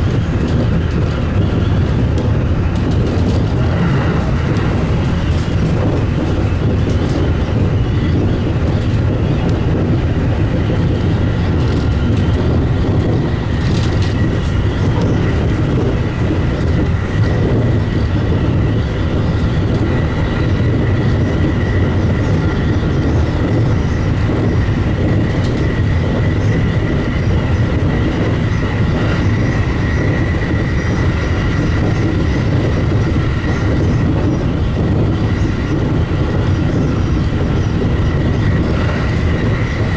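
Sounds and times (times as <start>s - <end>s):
high steady whine: 0.0s - 20.4s
train wheels rumbling on rails: 0.0s - 39.9s.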